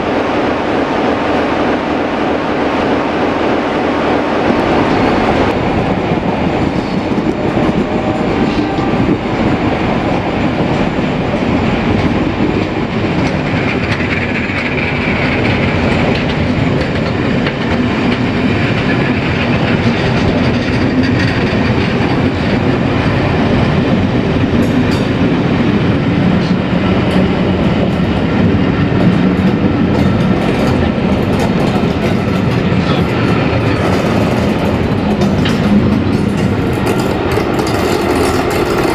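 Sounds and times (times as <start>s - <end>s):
train wheels clattering on rails: 4.2s - 38.9s.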